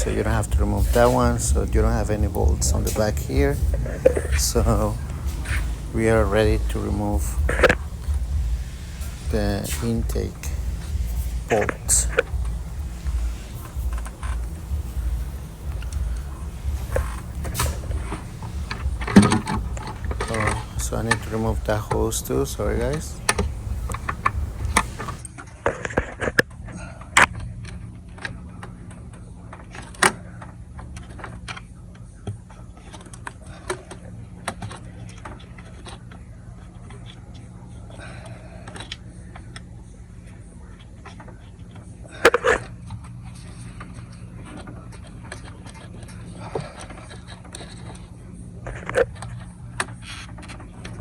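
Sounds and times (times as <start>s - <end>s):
hand tools clicking and clinking: 0.0s - 25.2s
steady low hum: 0.0s - 25.2s.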